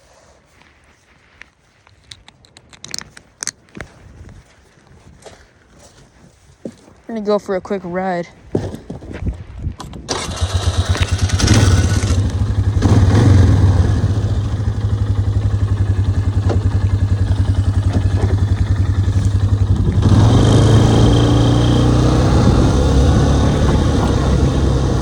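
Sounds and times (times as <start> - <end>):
atv engine revving: 10.1 - 25.0.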